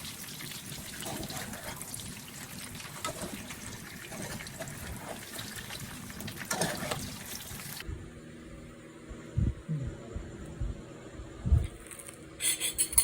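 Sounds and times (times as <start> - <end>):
water trickling and splashing: 0.0 - 7.8.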